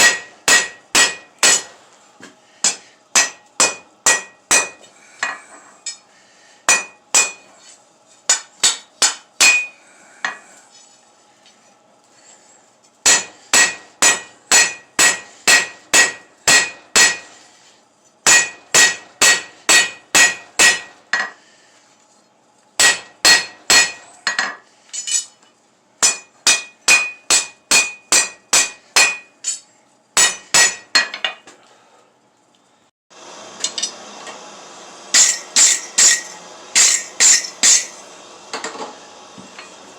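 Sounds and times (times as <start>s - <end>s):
hammer striking steel on anvil: 0.0s - 1.8s, 2.6s - 6.0s, 6.7s - 7.5s, 8.3s - 10.4s, 13.0s - 17.4s, 18.2s - 21.4s, 22.8s - 25.4s, 26.0s - 29.6s, 30.2s - 31.4s, 33.6s - 34.0s, 35.1s - 38.0s.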